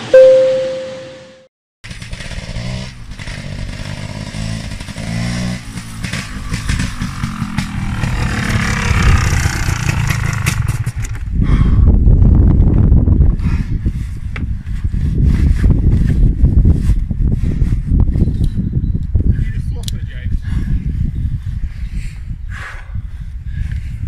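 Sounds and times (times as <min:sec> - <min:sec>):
beep tone: 0:00.0 - 0:01.5
motorcycle engine revving: 0:01.9 - 0:11.1.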